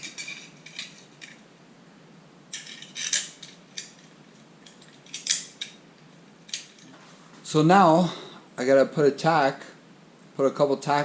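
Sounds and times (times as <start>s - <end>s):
light metal clinks and scrapes: 0.0s - 1.4s, 2.5s - 7.2s.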